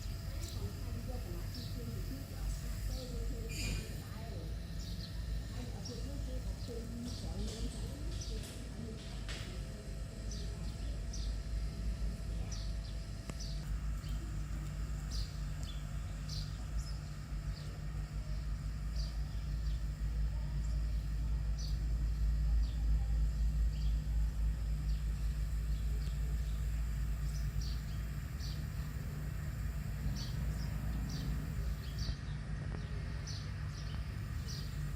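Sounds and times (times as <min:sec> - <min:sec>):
birds chirping: 0:00.0 - 0:34.9
steady low rumble: 0:09.5 - 0:34.9.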